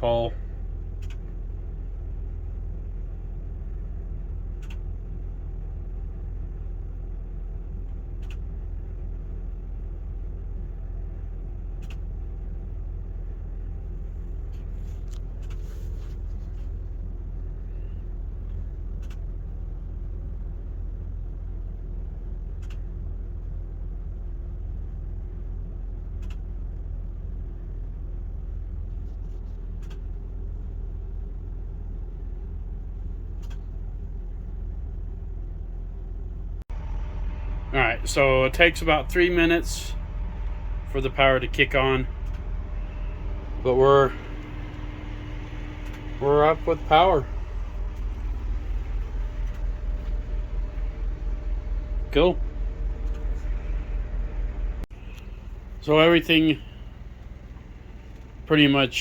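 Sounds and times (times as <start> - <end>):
generator humming: 0.0 - 59.0.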